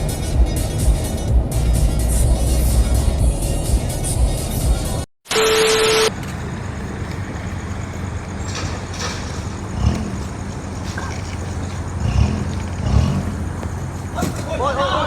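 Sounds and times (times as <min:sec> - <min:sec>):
vehicle engine running: 0:00.0 - 0:05.0, 0:06.1 - 0:14.6
traffic road noise: 0:00.0 - 0:15.0.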